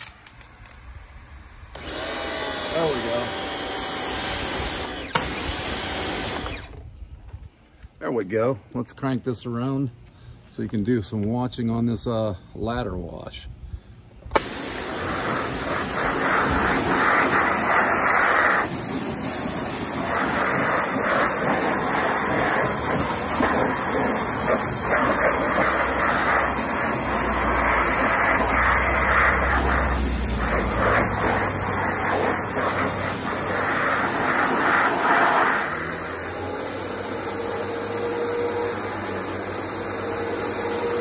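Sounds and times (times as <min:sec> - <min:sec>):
pressure washer spraying: 0:01.8 - 0:06.6, 0:14.4 - 0:41.0.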